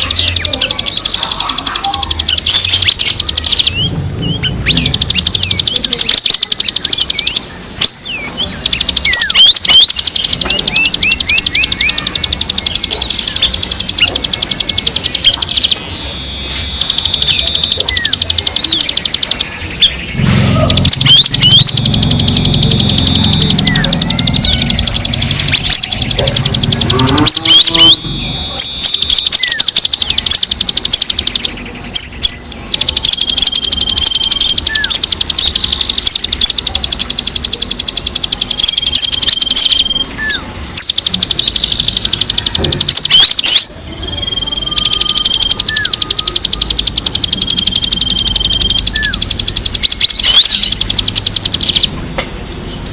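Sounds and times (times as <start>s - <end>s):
songbirds chattering trill: 0.0s - 52.9s.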